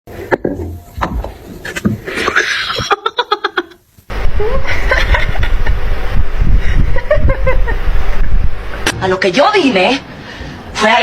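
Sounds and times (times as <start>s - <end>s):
people laughing: 2.1s - 3.8s, 4.4s - 5.8s, 6.7s - 7.8s
steady low rumble: 4.1s - 10.8s.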